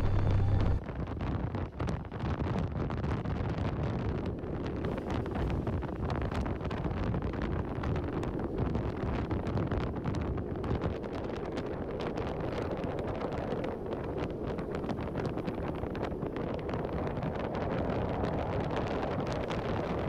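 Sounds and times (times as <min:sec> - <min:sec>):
motorcycle running: 0:00.0 - 0:00.8
wind buffeting microphone: 0:00.0 - 0:20.0.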